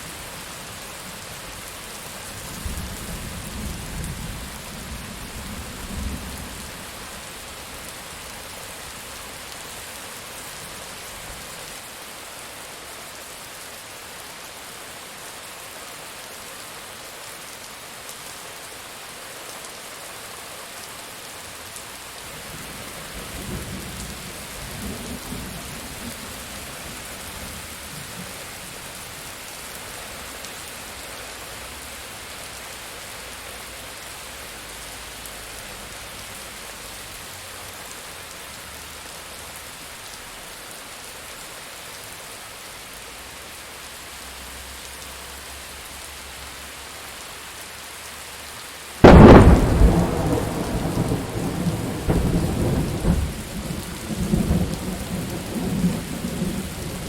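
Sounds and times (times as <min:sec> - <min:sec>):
steady rain: 0:00.0 - 0:57.0
thunderclap and rumbling: 0:49.0 - 0:56.8.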